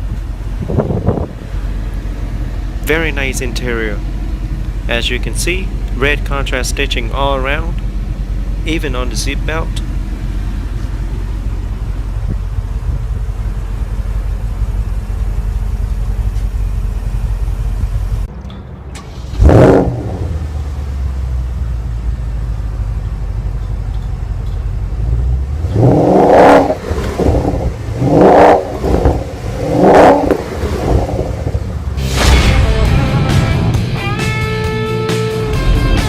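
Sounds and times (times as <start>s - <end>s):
car engine revving and idling: 0.0s - 36.0s.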